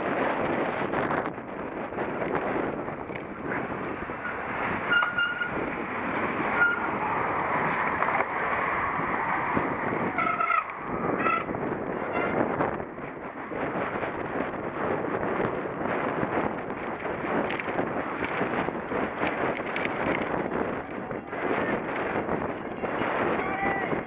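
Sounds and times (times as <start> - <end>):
bike tyres rolling: 0.0 - 23.4
wind rushing over microphone: 0.0 - 24.0
short high squeaks: 4.2 - 5.7, 6.5 - 7.4.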